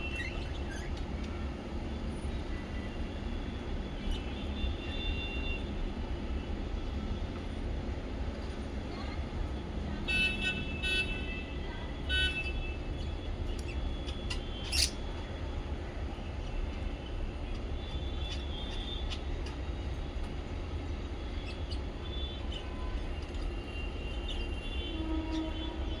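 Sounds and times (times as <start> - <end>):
parrots chirping: 13.6 - 15.0, 18.2 - 19.6.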